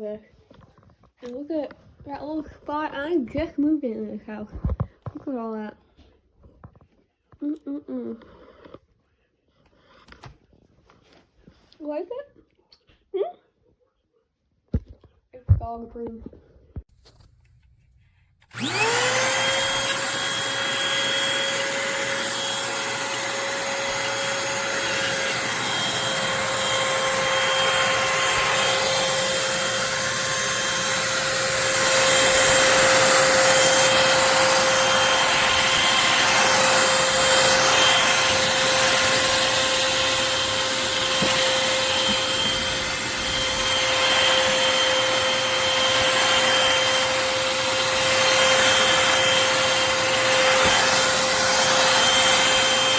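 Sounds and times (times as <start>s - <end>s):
stick vacuum motor whining: 18.4s - 52.9s.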